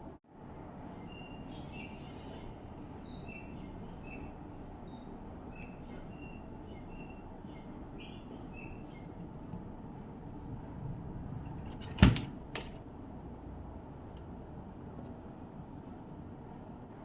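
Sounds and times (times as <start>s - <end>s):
birds chirping faintly: 0.3s - 10.7s.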